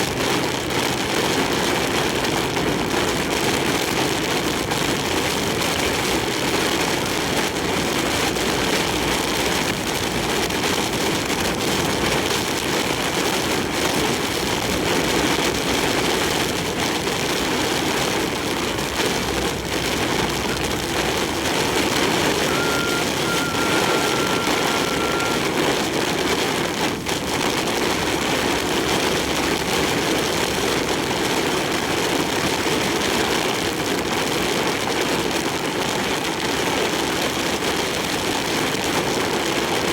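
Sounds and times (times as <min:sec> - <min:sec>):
engine and road noise: 0:00.0 - 0:39.9
wind and rain on truck cab: 0:00.0 - 0:39.9
electronic beep: 0:22.3 - 0:25.4.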